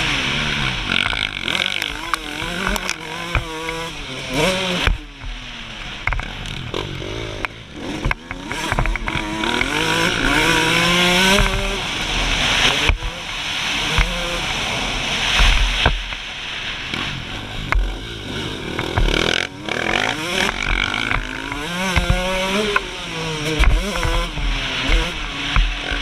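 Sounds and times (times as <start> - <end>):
two-stroke motorcycle revving: 0.0 - 26.0
rushing wind noise: 7.7 - 26.0.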